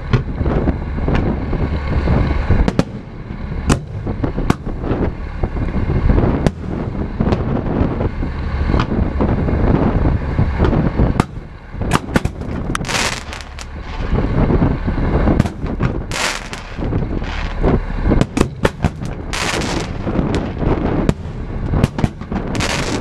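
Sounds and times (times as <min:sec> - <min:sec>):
deep rumble: 0:00.0 - 0:23.0
fireworks bangs: 0:02.6 - 0:08.0, 0:10.6 - 0:23.0
fireworks crackling hiss: 0:12.0 - 0:23.0.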